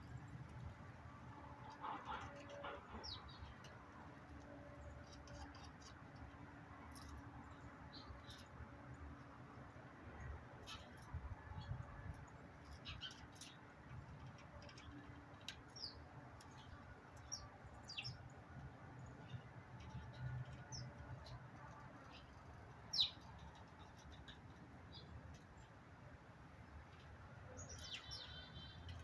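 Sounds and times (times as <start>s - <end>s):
birds chirping: 1.6s - 3.8s, 10.2s - 25.8s, 26.9s - 29.0s.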